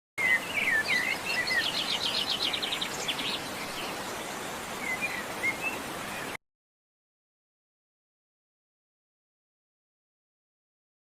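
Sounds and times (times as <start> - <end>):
background hiss: 0.2 - 6.4
songbirds chirping: 0.2 - 6.4.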